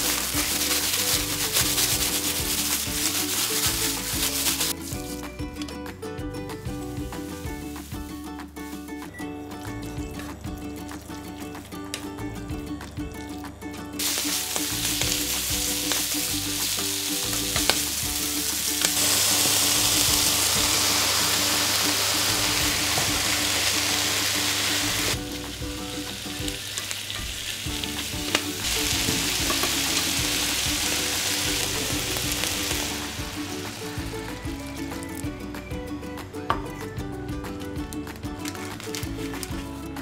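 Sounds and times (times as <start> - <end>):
meat sizzling in a frying pan: 0.0 - 4.8, 14.0 - 33.8.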